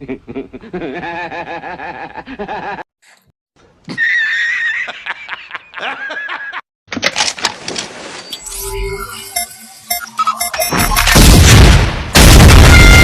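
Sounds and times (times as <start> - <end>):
cartoonish high-pitched laughter: 3.9 - 6.6
clattering sound effects: 8.6 - 11.2.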